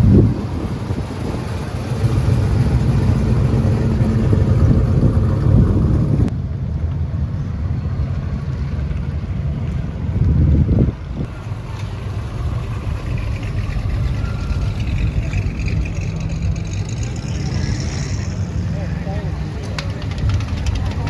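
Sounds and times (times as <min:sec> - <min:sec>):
car engine rumble: 0:00.0 - 0:21.0
road noise: 0:00.0 - 0:21.0.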